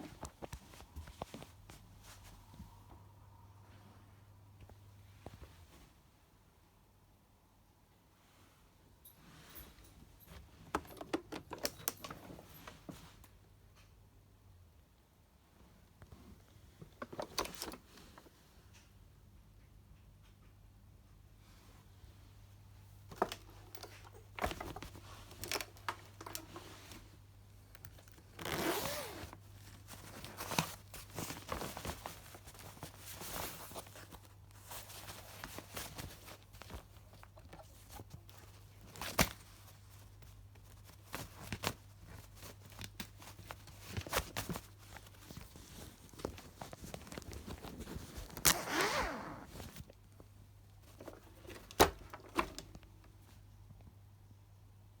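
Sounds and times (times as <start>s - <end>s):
rustling and scraping handling: 0.0s - 3.0s, 8.2s - 13.4s, 21.4s - 53.8s.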